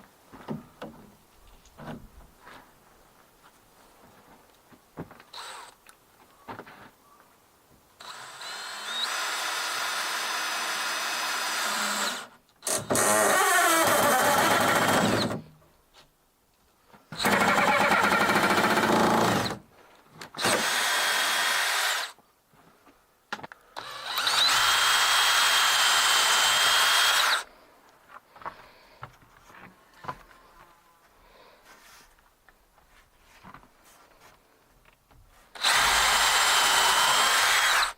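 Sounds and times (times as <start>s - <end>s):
power drill running in bursts: 8.0s - 12.3s, 23.8s - 27.5s, 35.6s - 37.9s.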